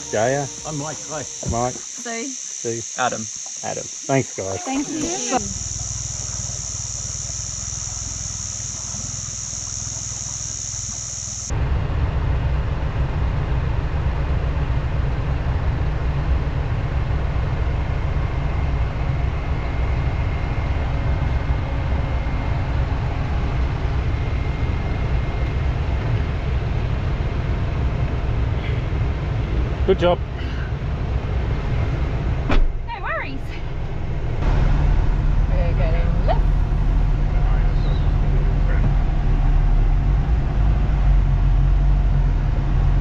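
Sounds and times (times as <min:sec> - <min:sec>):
low engine hum: 0:00.0 - 0:02.0, 0:02.6 - 0:43.0
high insect drone: 0:00.0 - 0:11.6
truck rumbling along a track: 0:03.7 - 0:43.0.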